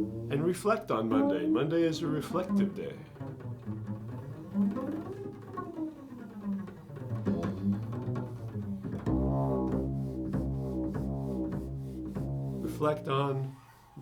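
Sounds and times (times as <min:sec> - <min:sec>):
low held notes: 0:00.0 - 0:03.2, 0:07.0 - 0:13.8.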